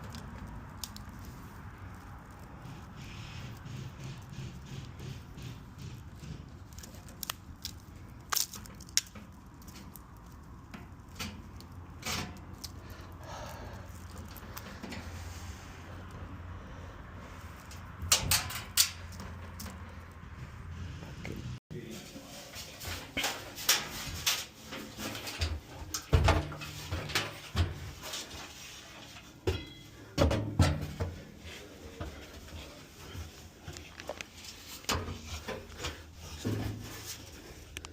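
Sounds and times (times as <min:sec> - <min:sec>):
metal parts and tools clattering: 0:17.7 - 0:19.8, 0:22.6 - 0:31.2.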